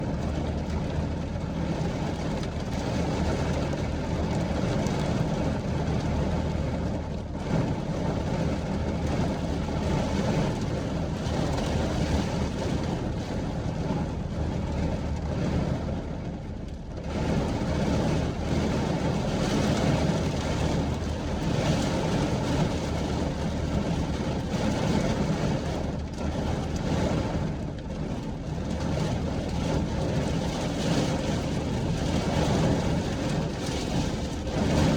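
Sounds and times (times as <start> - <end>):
wind and rain rushing: 29.9 - 34.9.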